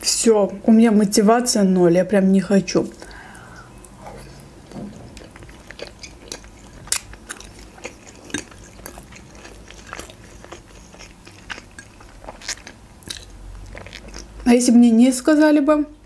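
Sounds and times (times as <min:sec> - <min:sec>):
close chewing with mouth clicks: 0:02.9 - 0:14.5.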